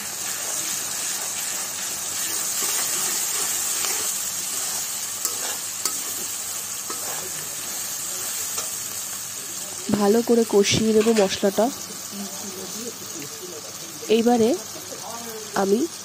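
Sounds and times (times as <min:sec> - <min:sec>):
metal spatula stirring and scraping: 0:00.0 - 0:09.0
food sizzling in hot oil: 0:00.0 - 0:16.0.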